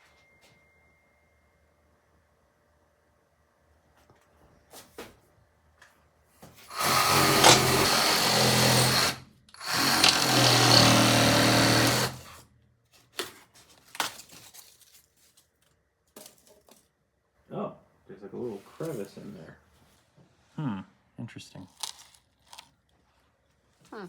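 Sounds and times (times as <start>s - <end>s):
reciprocating saw cutting foam: 6.7s - 12.4s.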